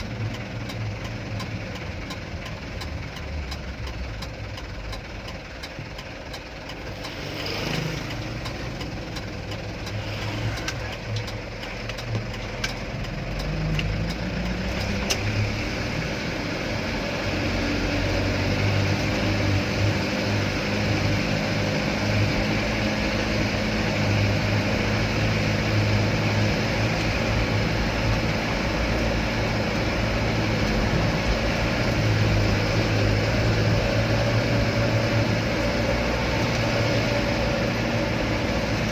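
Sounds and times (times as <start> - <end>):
truck engine running: 0.0 - 38.9
sharp clicks: 0.2 - 15.3.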